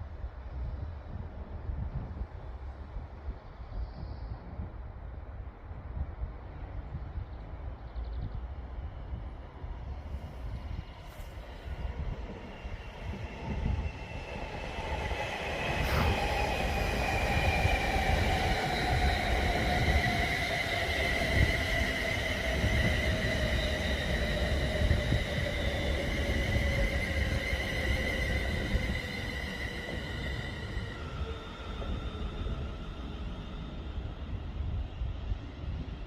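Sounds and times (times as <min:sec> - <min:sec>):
wheels rumbling on rail: 0:08.3 - 0:36.0
electric train whine: 0:08.4 - 0:36.0.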